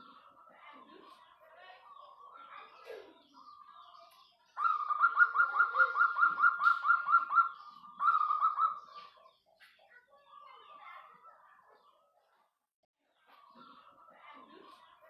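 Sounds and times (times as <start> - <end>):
dove rolling coo: 4.6 - 8.8.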